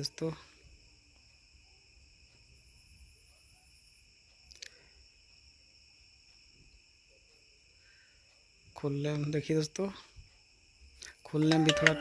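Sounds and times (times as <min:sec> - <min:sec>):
faint high-pitched hum: 0:11.0 - 0:12.0.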